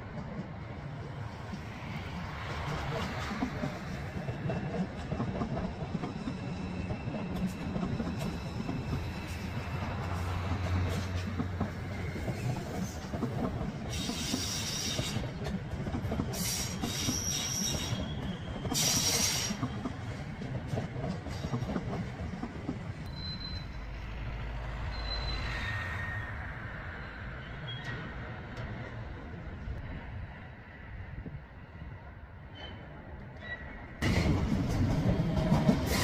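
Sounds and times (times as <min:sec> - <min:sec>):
train wheels rumbling on rails: 0:00.0 - 0:36.0
high-pitched wheel squeal: 0:16.4 - 0:19.7, 0:23.0 - 0:24.0, 0:24.8 - 0:28.1.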